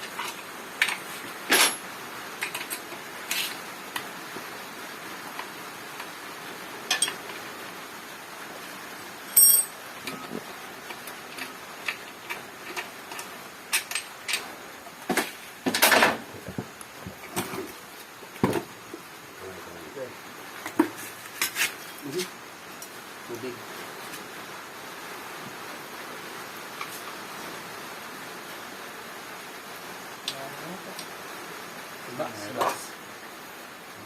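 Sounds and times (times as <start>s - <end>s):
metal tools clinking: 0.1s - 2.8s, 6.9s - 7.3s, 9.3s - 10.3s.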